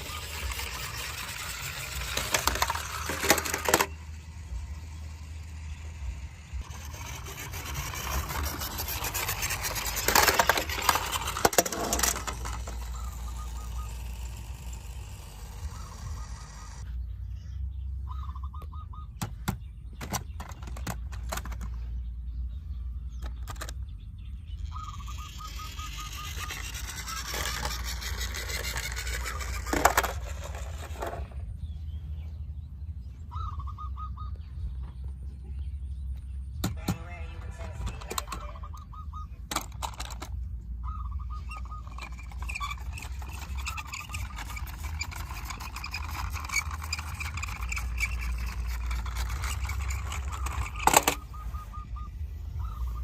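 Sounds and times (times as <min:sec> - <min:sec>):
toy cars rustling and clattering: 0:00.0 - 0:16.9, 0:19.2 - 0:22.2, 0:23.0 - 0:31.6, 0:36.6 - 0:51.7
steady low hum: 0:00.0 - 0:53.0.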